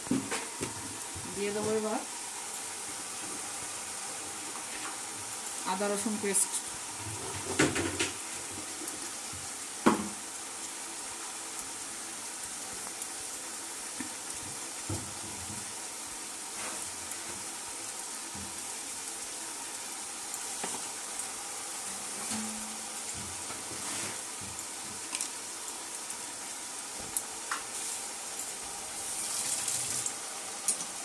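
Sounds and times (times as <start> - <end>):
food sizzling in a pan: 0.0 - 31.0
knocks on a pan: 9.9 - 10.2.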